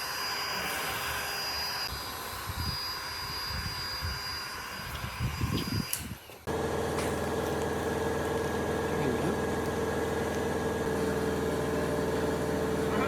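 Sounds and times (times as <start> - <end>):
machine motor running: 6.5 - 13.0.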